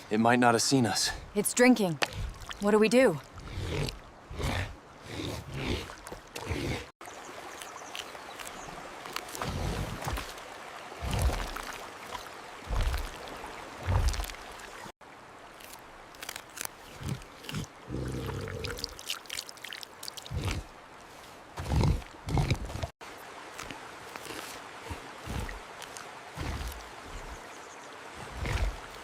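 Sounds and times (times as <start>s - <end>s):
water running and splashing: 0.8s - 29.0s
animal drinking: 15.6s - 27.4s.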